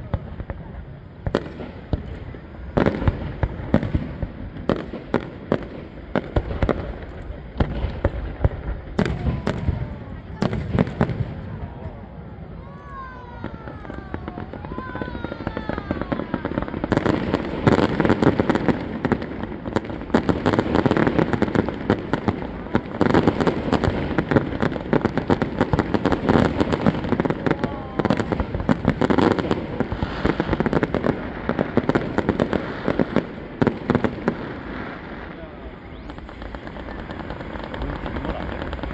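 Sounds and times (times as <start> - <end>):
firework bangs and crackling: 0.0 - 38.9
firework falling whistle: 9.0 - 18.2, 35.5 - 38.9.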